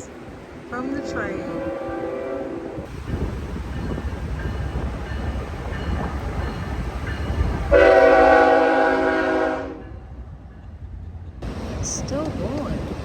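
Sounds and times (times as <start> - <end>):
train rumbling past: 0.0 - 13.0
train horn blast: 0.9 - 2.9, 7.7 - 10.0.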